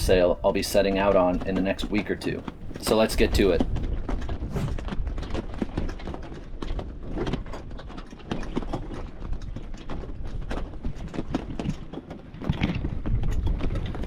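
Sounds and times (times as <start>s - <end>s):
steady low rumble: 2.6s - 5.0s.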